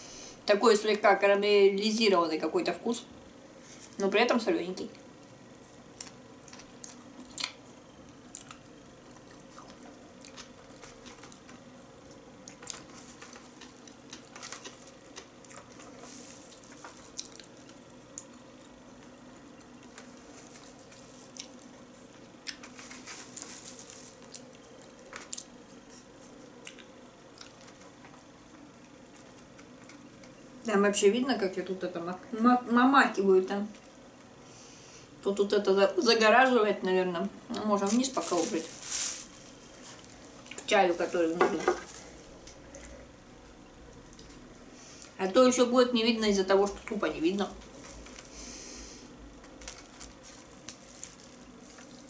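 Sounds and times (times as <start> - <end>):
wet chewing and smacking: 6.0 - 21.8, 26.6 - 28.2.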